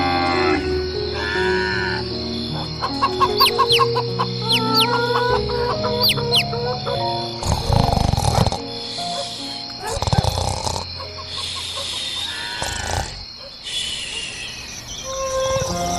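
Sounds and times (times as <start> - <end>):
background music: 0.0 - 13.2, 15.1 - 15.9
birds chirping: 0.7 - 15.9
chickens clucking: 2.4 - 15.9.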